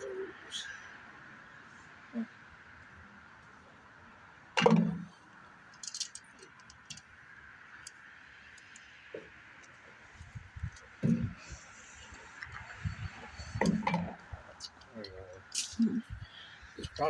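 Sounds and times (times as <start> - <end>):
light clicks and rattles: 5.7 - 7.2.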